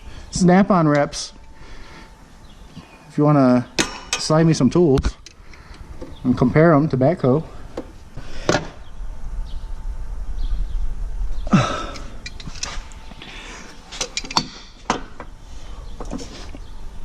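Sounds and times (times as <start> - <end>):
tools clicking and knocking: 3.8 - 4.3, 12.0 - 12.8, 14.0 - 15.3
low rumble: 5.9 - 13.5.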